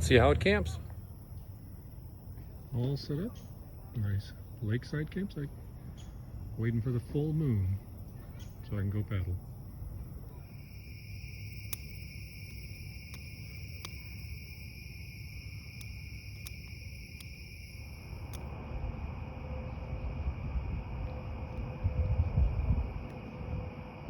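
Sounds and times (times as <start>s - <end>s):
crickets trilling: 0.1s - 24.0s
sharp ticks: 10.6s - 18.5s
low rumble on microphone: 18.5s - 24.0s.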